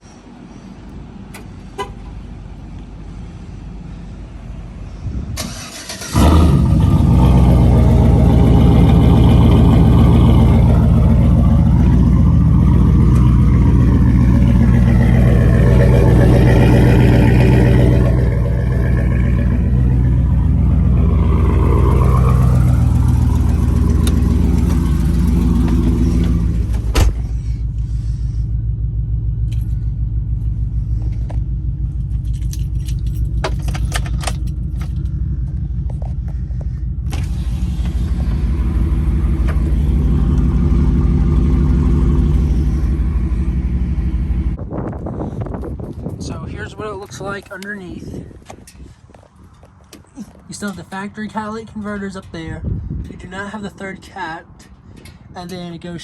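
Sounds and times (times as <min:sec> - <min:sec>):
car engine starting: 0:04.9 - 0:46.2
loud engine idling: 0:06.2 - 0:32.2, 0:35.0 - 0:44.6.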